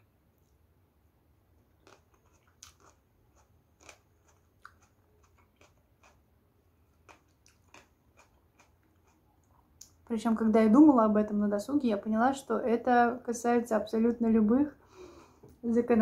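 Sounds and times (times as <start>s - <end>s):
person chewing food: 1.6s - 10.0s.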